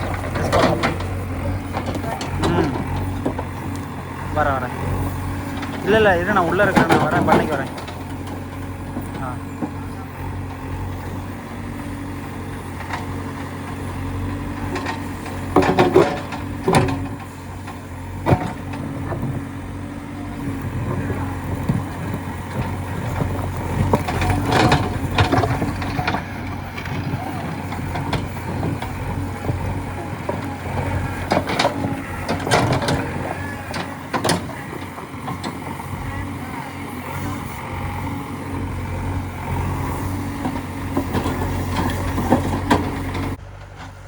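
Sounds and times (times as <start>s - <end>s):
diesel machinery engine running: 0.0s - 44.0s
loud knocks and clanks: 12.8s - 19.5s.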